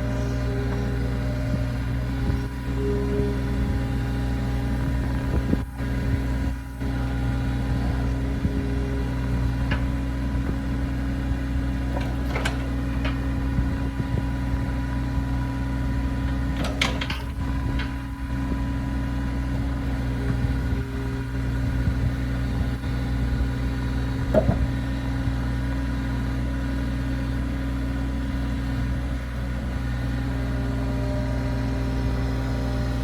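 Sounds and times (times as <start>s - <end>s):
excavator diesel engine running: 0.0s - 33.0s
sharp clanks or squeaks: 11.9s - 13.3s, 16.3s - 18.1s.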